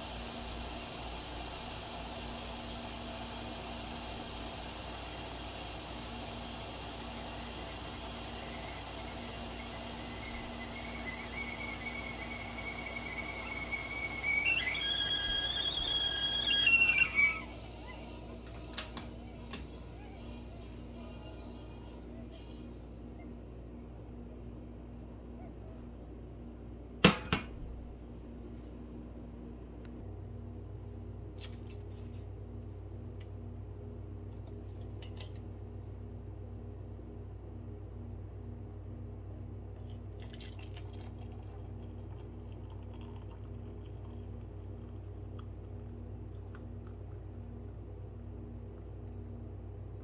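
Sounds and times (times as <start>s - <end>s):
tea kettle whistling: 0.0s - 22.0s
low hum: 7.0s - 24.5s.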